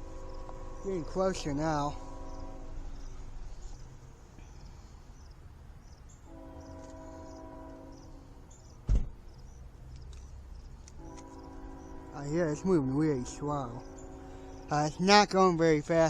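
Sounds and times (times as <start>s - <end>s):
locomotive air horn: 0.0s - 3.3s, 6.2s - 8.5s, 10.9s - 16.0s
train rumbling: 0.0s - 9.8s, 10.5s - 16.0s
sharp thump near microphone: 8.8s - 9.2s.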